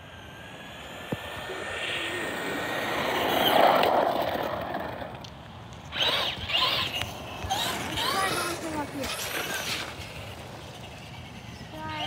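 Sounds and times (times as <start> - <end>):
motor whine: 0.0 - 12.0
rc truck driving past: 0.0 - 12.0.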